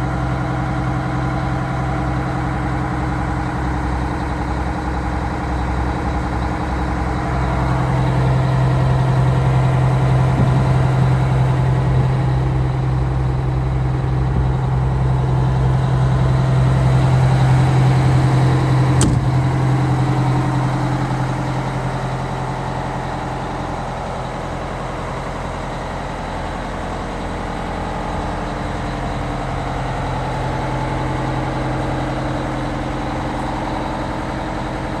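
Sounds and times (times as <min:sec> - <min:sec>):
diesel truck engine running: 0:00.0 - 0:35.0
sharp click: 0:19.0 - 0:19.5.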